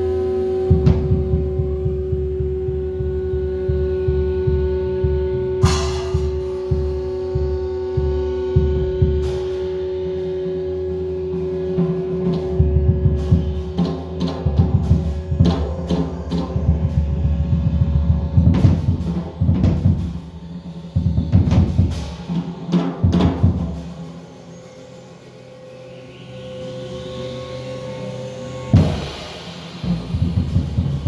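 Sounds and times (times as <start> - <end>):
drum strikes: 0.6 - 9.7, 28.8 - 31.0.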